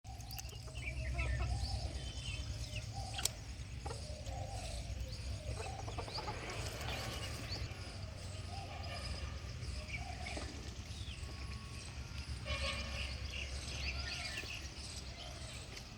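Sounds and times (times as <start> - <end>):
poultry clucking: 5.3 - 7.4.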